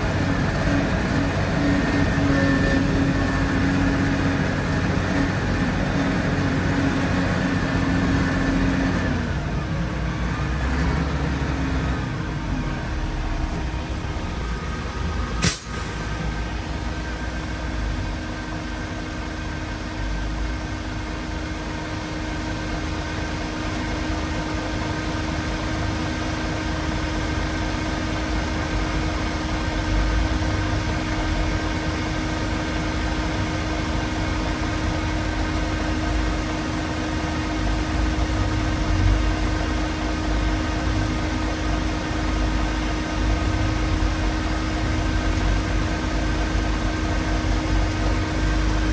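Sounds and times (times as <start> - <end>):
engine running steadily: 0.0 - 48.9
sharp click: 15.4 - 15.8.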